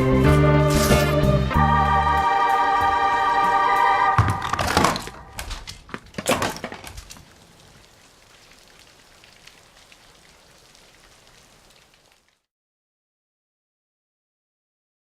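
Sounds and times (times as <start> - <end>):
sharp cracks and clattering impacts: 4.3 - 7.8
faint hiss of rain: 5.6 - 12.5.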